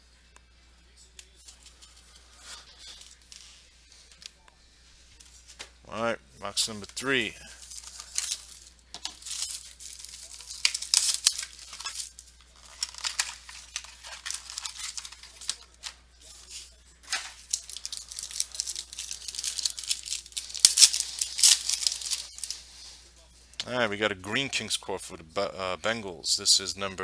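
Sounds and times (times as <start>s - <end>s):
plastic wrapping tearing and crinkling: 1.4s - 4.3s, 6.6s - 22.9s.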